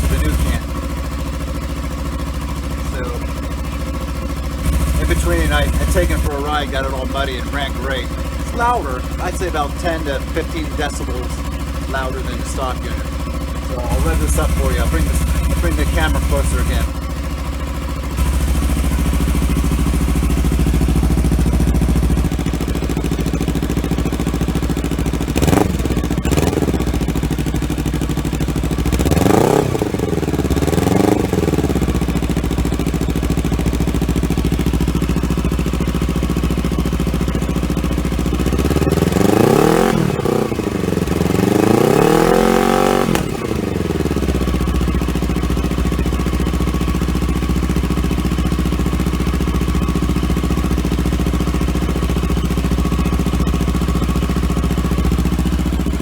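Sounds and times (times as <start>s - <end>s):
motorcycle engine idling: 0.0s - 56.0s
motorcycle engine revving: 0.0s - 56.0s.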